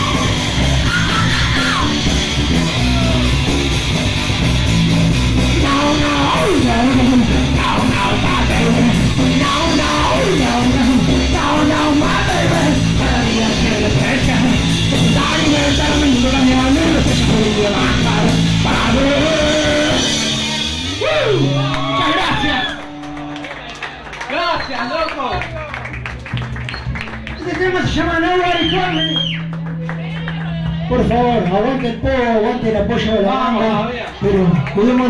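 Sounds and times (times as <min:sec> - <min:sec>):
punk rock band playing live: 0:00.0 - 0:33.4
person singing: 0:05.6 - 0:22.4.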